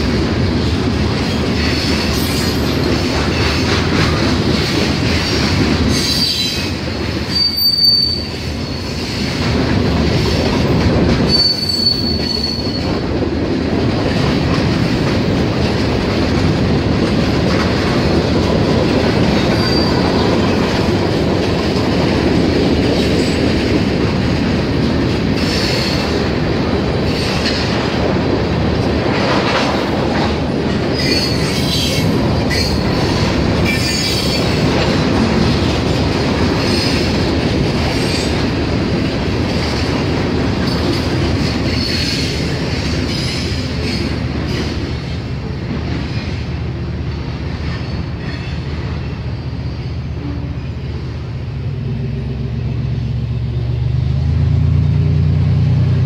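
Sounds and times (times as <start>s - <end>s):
high wheel squeals: 7.3s - 9.0s, 11.3s - 12.9s, 19.5s - 20.2s.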